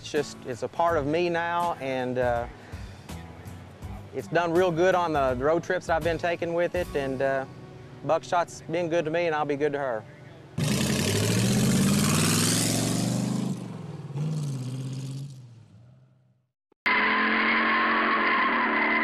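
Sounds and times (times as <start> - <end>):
road and wind noise: 7.2 - 15.8
car engine driving past: 10.6 - 16.0.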